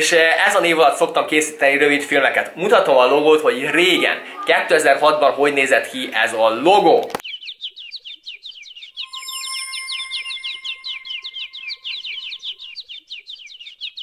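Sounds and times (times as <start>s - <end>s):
rapid falling bird chirps: 7.2s - 14.0s
steady high tone: 9.0s - 12.6s.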